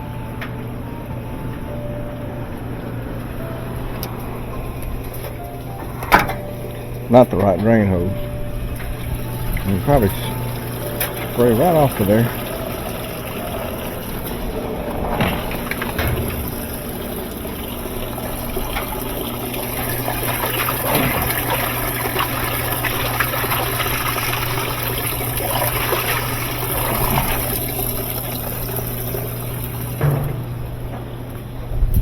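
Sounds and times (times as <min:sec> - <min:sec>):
drain pump humming: 0:00.0 - 0:32.0
water splashing and trickling: 0:03.4 - 0:30.4.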